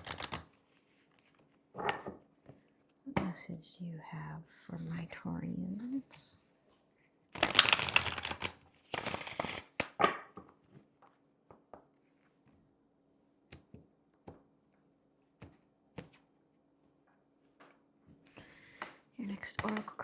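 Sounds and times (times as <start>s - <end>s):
cards shuffling: 0.0s - 1.6s, 7.4s - 10.0s.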